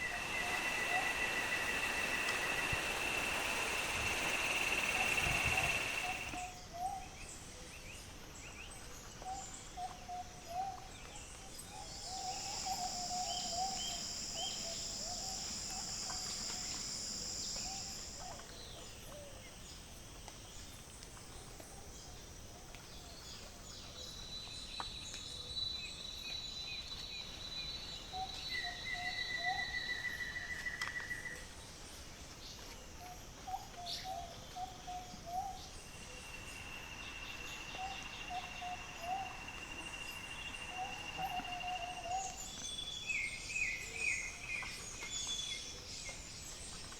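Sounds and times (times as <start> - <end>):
high insect buzz: 0.0 - 6.5.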